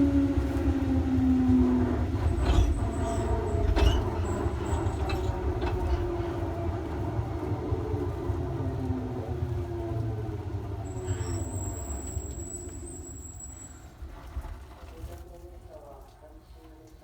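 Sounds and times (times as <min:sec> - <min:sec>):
train running rumble: 0:00.0 - 0:15.2
train traction motors whining: 0:00.4 - 0:14.0.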